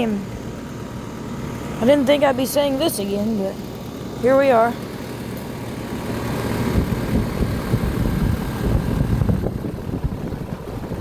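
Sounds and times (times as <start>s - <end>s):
air conditioner compressor and fan hum: 0.0s - 11.0s
gusty low rumble of air: 5.9s - 11.0s.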